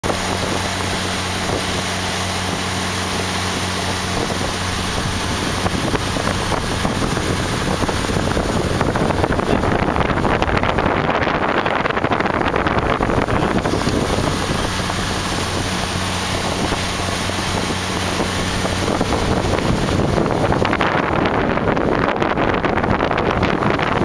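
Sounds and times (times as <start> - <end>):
motorboat engine humming: 0.0 - 24.0
rushing water: 0.0 - 24.0
wind buffeting microphone: 0.0 - 24.0.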